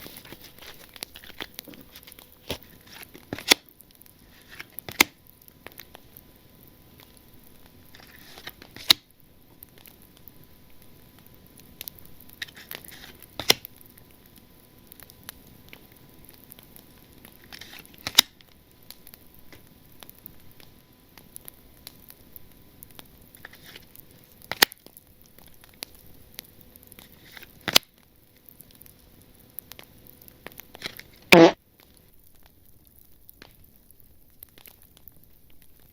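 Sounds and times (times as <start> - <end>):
trading cards rustling and sliding: 0.0 - 3.6.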